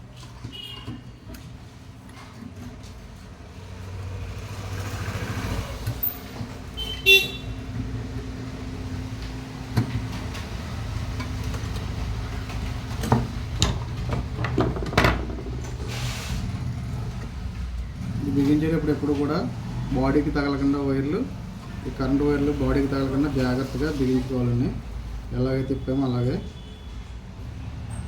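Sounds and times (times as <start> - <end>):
car horn toot: 0.5 - 1.1, 6.8 - 7.6
tools clicking and knocking: 11.2 - 15.8.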